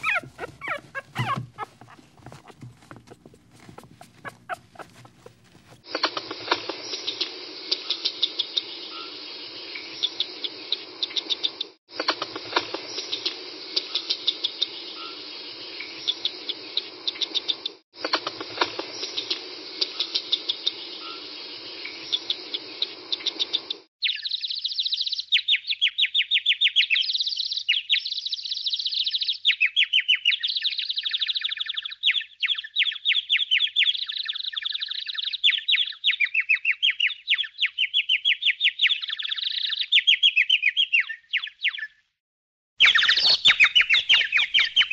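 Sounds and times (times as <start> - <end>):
sparrow chirping: 0.0 - 5.8, 42.8 - 44.9.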